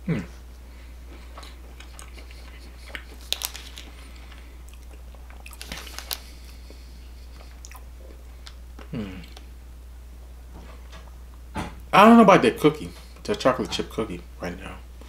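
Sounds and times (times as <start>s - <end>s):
person humming mm: 0.0s - 0.4s, 8.8s - 9.4s
low steady hum: 0.0s - 15.0s
person chewing crunchy cookie: 1.0s - 9.5s.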